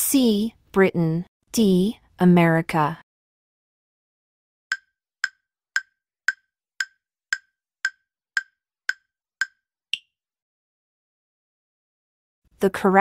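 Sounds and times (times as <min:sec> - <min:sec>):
short woody timer ticks: 0:04.7 - 0:09.6.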